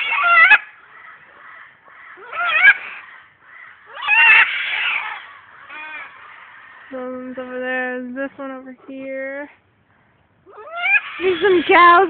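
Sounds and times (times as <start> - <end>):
birds giving harsh calls: 0.0 - 8.1, 10.0 - 12.0
faint bird chatter: 0.0 - 8.1.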